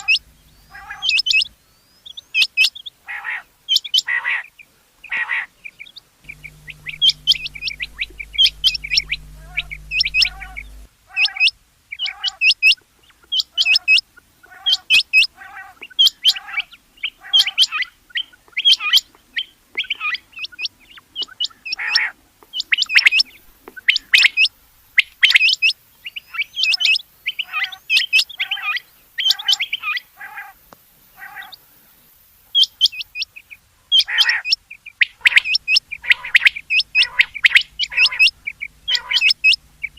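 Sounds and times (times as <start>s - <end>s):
quail calling: 0.0s - 1.5s, 6.3s - 12.5s, 31.2s - 31.6s, 32.6s - 39.9s.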